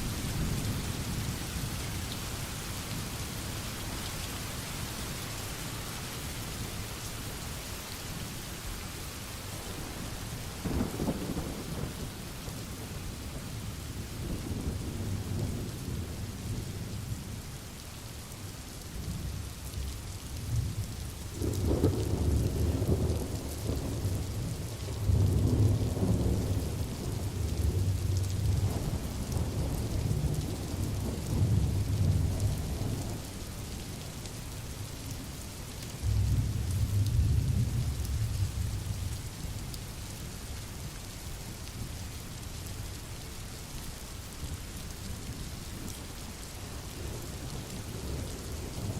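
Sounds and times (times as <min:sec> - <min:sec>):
low rolling thunder: 0:10.6 - 0:13.3, 0:20.4 - 0:33.3, 0:36.0 - 0:39.2, 0:47.0 - 0:48.9.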